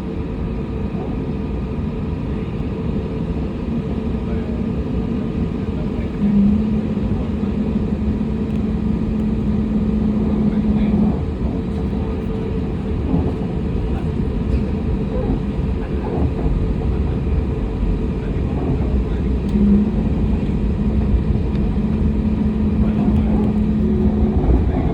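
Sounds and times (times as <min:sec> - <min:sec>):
jet cabin engine rumble: 0:00.0 - 0:24.9
steady hum: 0:06.0 - 0:24.9.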